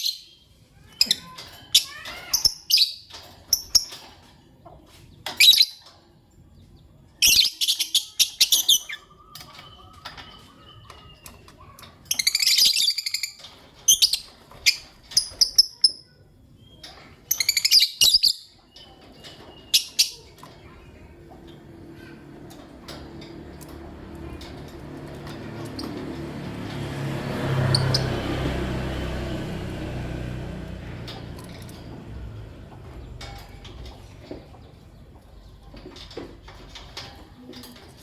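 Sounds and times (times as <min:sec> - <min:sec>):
birds chirping shrilly: 0:00.0 - 0:04.1, 0:07.2 - 0:21.2, 0:23.2 - 0:35.4.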